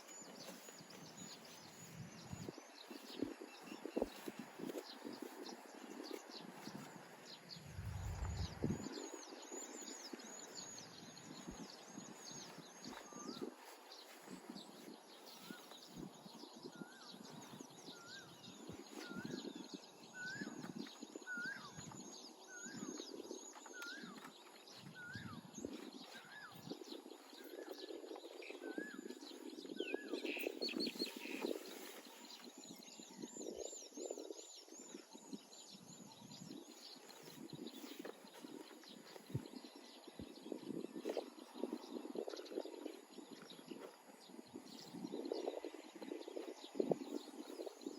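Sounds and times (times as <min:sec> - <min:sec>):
rustling noise: 0:00.0 - 0:09.2, 0:30.4 - 0:32.8, 0:36.7 - 0:39.6.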